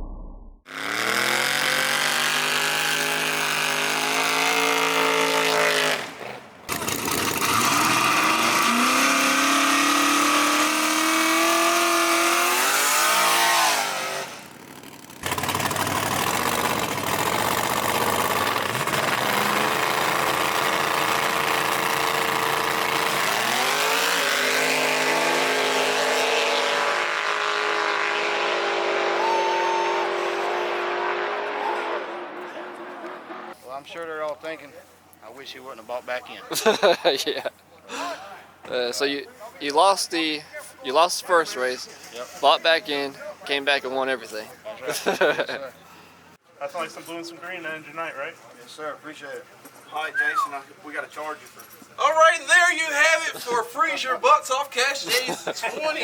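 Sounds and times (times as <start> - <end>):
race car engines accelerating hard: 0.7 - 33.6.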